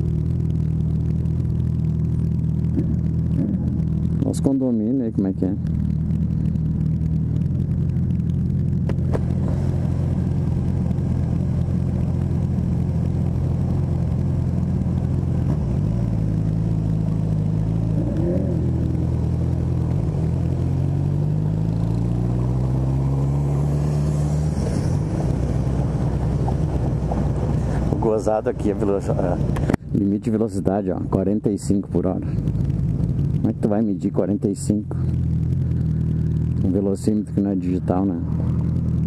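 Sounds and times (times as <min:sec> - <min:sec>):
motorcycle engine idling and revving: 0:00.0 - 0:39.0.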